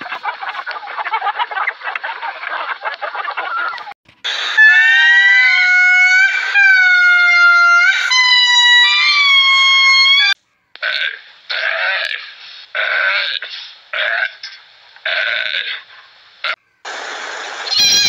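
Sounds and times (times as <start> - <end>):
hens clucking: 0.0 - 4.0
loud long high calls: 3.4 - 10.4, 17.6 - 18.0.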